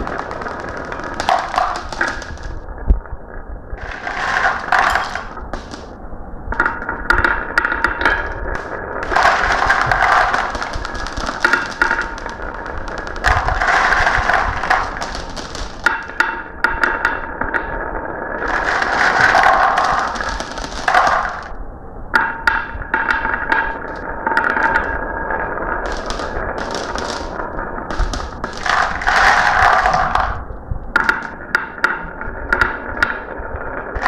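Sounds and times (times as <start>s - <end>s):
marbles clicking on track: 0.0s - 2.6s, 3.8s - 5.9s, 6.6s - 17.8s, 18.4s - 21.6s, 22.5s - 30.4s
marbles rolling: 0.0s - 2.9s, 3.8s - 6.0s, 6.6s - 21.6s, 22.2s - 34.0s.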